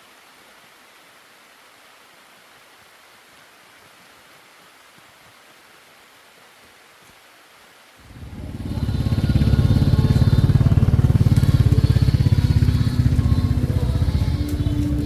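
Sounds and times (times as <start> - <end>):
motorcycle engine running: 8.0 - 15.0.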